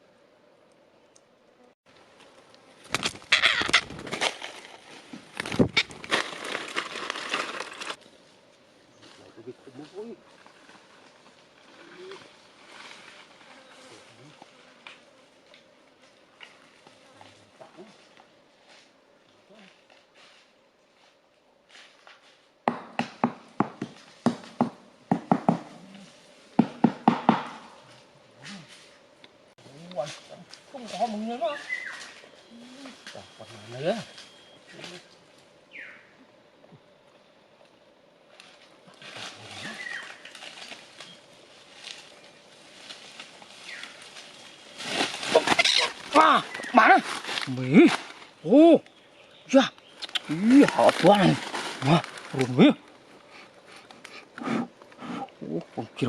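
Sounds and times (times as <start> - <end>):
wood tearing and splintering: 2.9 - 8.0.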